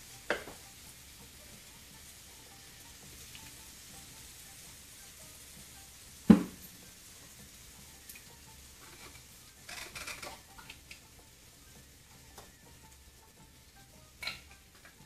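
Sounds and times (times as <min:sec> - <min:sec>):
seafood sizzling on a griddle: 0:00.0 - 0:15.0.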